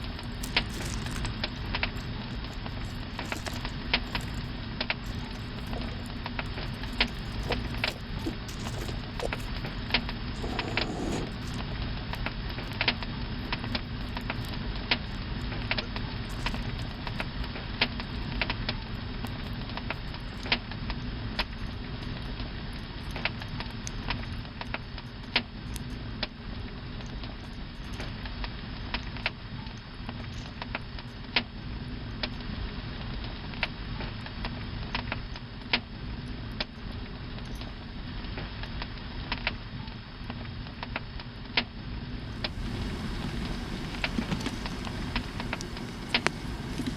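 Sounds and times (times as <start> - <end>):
flames rushing: 0.0 - 18.5, 42.2 - 46.9
wood crackling and popping: 0.0 - 20.7, 41.6 - 46.9.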